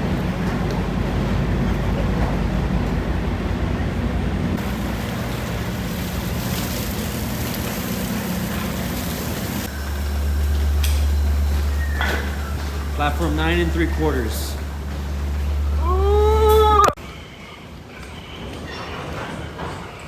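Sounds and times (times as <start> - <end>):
low engine hum: 0.0 - 17.0
deep hum: 1.0 - 17.0
hiss: 4.6 - 10.1.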